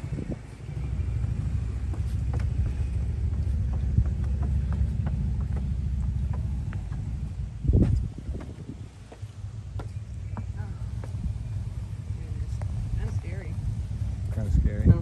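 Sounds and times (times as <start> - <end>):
wind buffeting microphone: 0.0 - 15.0
faint distant knocks: 1.0 - 7.3.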